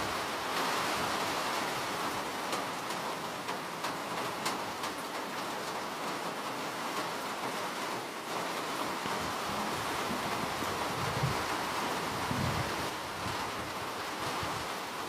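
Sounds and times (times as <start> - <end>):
steady rain: 0.0 - 15.0
raindrops ticking on hard surface: 1.4 - 11.6.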